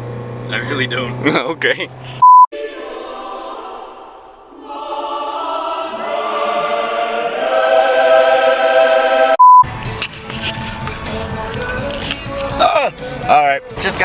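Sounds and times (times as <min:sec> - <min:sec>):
short electronic beep: 0:02.2 - 0:02.5, 0:09.4 - 0:09.7
choir singing in harmony: 0:02.6 - 0:09.4.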